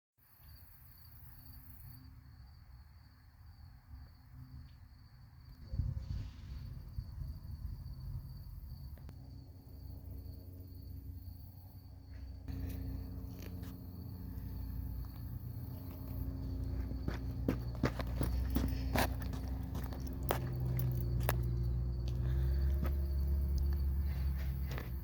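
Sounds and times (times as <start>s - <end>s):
high insect trill: 0.2s - 25.0s
low rumble: 5.6s - 25.0s.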